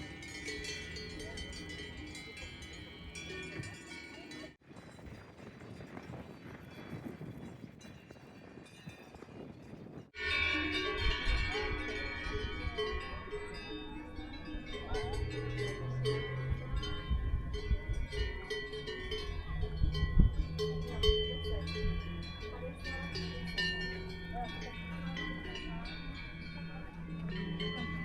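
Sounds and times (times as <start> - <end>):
cowbells clanking: 0.0 - 28.0
low rumble: 10.2 - 28.0.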